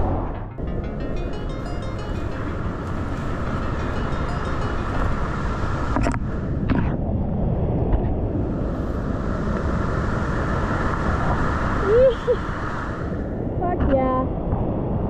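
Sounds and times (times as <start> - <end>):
whitewater roaring: 0.0 - 13.5.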